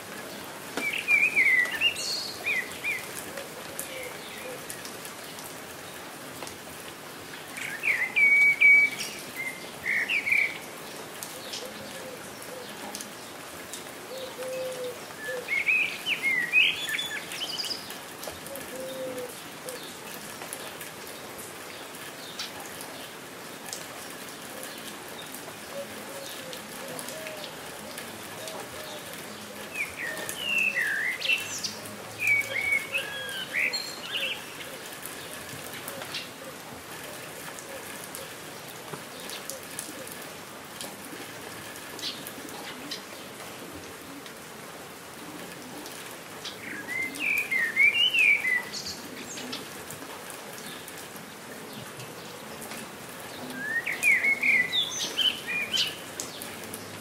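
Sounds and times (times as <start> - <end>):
rain falling: 0.0 - 57.0
songbird singing: 0.2 - 5.5, 7.4 - 13.3, 14.1 - 20.0, 24.7 - 36.5, 46.4 - 49.8, 53.3 - 57.0.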